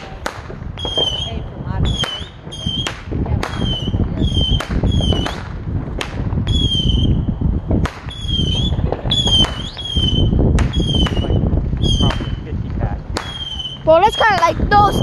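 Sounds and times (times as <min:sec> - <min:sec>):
continuous low rumble: 0:00.0 - 0:15.0
firework cracks: 0:00.0 - 0:15.0
whistling fireworks: 0:00.0 - 0:15.0.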